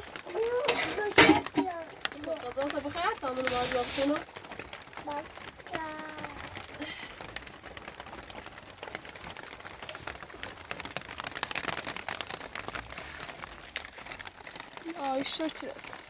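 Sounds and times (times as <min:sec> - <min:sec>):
patter of small clicks and taps: 0:00.0 - 0:03.6.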